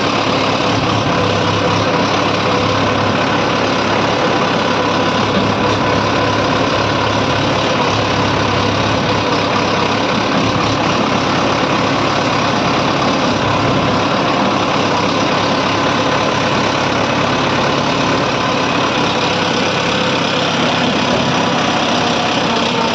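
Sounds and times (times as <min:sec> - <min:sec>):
tractor engine running: 0:00.0 - 0:22.9.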